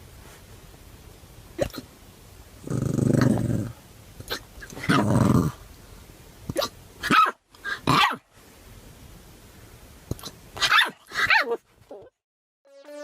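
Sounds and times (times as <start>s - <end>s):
dog barking: 6.6s - 8.2s, 10.6s - 11.6s.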